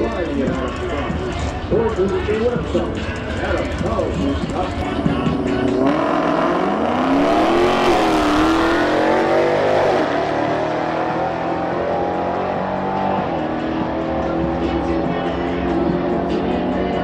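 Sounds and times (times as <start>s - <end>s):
car engine accelerating hard: 5.6s - 17.0s.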